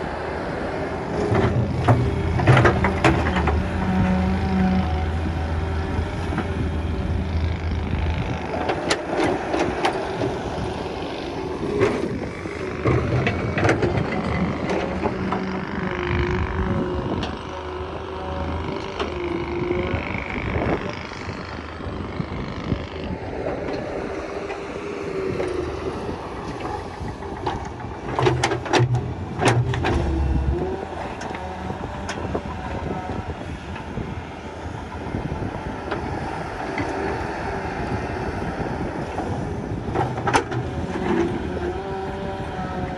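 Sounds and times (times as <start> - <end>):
excavator engine under load: 0.0 - 42.9
hydraulic whine: 0.0 - 42.9.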